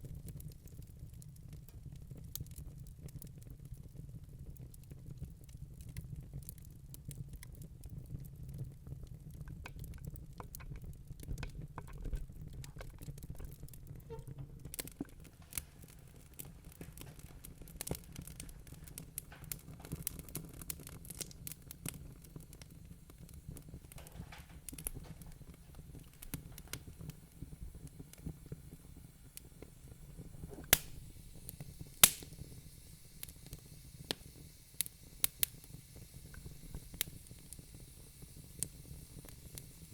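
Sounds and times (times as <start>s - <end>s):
fire flames rumbling: 0.0s - 39.9s
logs crackling: 9.7s - 35.7s
loud sharp pops: 30.4s - 32.6s.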